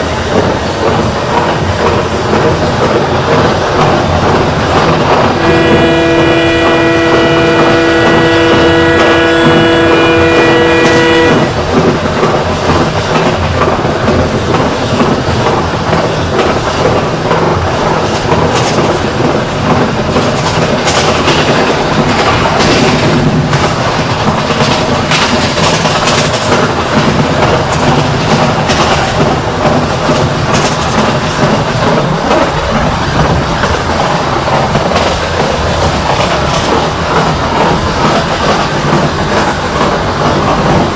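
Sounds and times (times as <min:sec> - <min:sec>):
train wheels clickety-clack: 0:00.0 - 0:40.9
locomotive air horn: 0:05.4 - 0:11.6.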